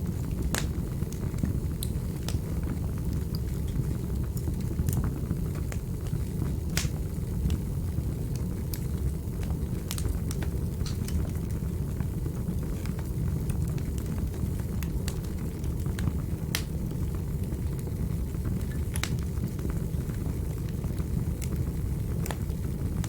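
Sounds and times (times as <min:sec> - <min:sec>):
burning wood crackling and popping: 0:00.0 - 0:23.0
low rumble of flames: 0:00.0 - 0:23.0.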